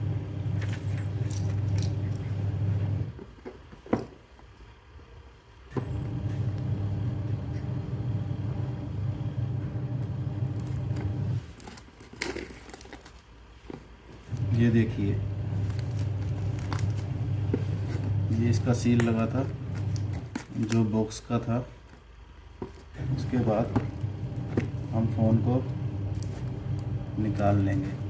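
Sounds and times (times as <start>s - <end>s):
low engine-like hum: 0.0s - 3.1s, 5.8s - 11.4s, 23.0s - 28.0s.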